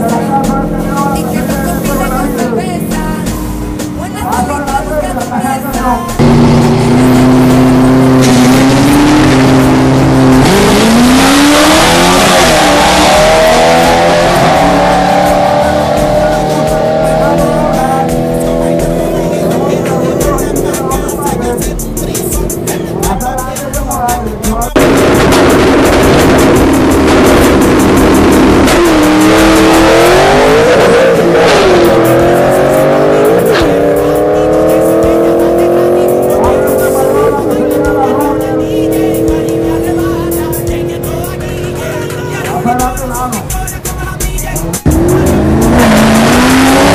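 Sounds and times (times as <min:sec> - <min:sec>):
drag racing engine revving: 0:00.0 - 0:46.9.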